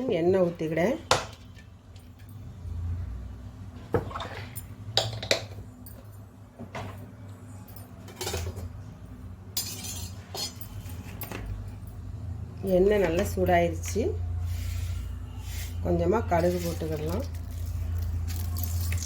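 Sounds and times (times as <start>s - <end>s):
kitchen utensils clinking: 4.0s - 8.9s, 9.5s - 11.9s, 15.5s - 19.0s.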